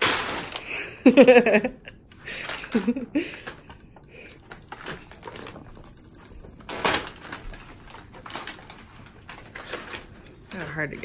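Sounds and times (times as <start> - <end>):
packing paper rustling and crinkling: 2.3 - 3.0, 4.6 - 11.0.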